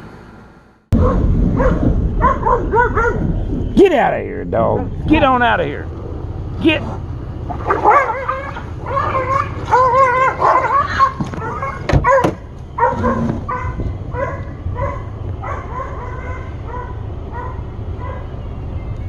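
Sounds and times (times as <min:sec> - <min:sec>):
dogs barking and yelping: 0:01.0 - 0:03.4, 0:06.9 - 0:18.4.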